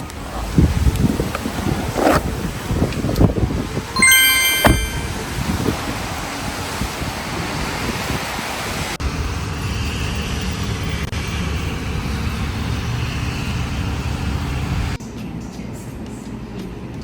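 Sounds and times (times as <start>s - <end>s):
road vehicle rumble and hiss: 6.4s - 16.6s.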